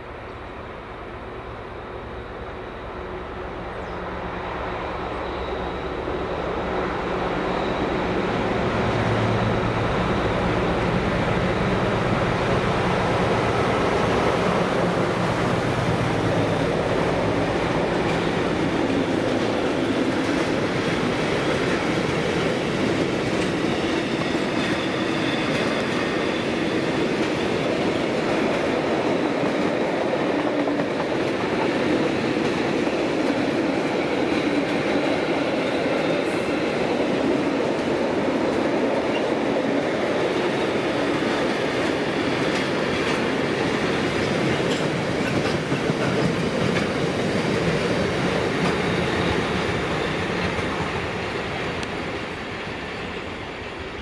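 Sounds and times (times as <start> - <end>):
train wheels clattering on track: 6.7 - 53.2.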